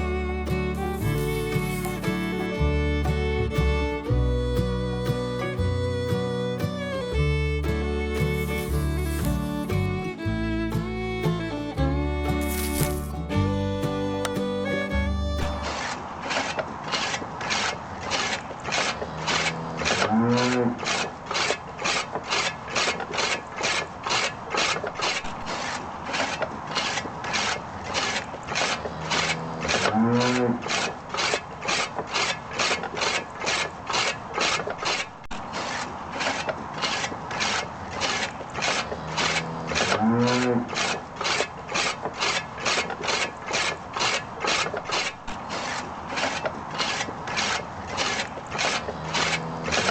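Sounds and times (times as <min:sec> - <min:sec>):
short wavering squeal: 0:00.0 - 0:03.2
rhythmic rasping strokes: 0:00.0 - 0:15.9.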